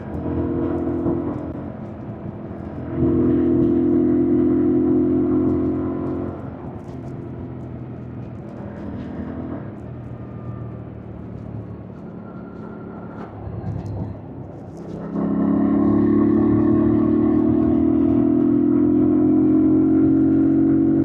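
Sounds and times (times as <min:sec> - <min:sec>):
motorcycle engine accelerating: 0:02.8 - 0:07.0, 0:14.9 - 0:21.0.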